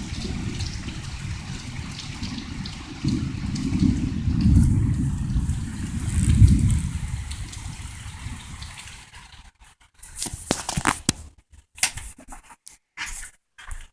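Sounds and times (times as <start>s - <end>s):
low rumble: 3.9s - 8.8s
sharp crackles and clicks: 4.4s - 7.7s, 10.0s - 12.0s.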